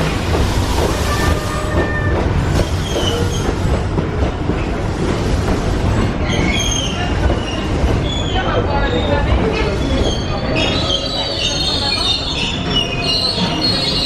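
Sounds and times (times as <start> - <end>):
steam train rumbling: 0.0 - 14.0
wheels squealing: 9.9 - 14.0.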